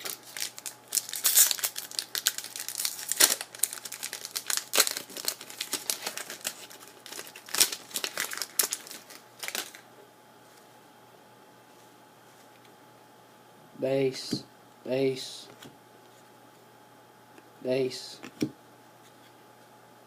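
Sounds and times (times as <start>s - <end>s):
wrapper crinkling and tearing: 0.0s - 9.8s.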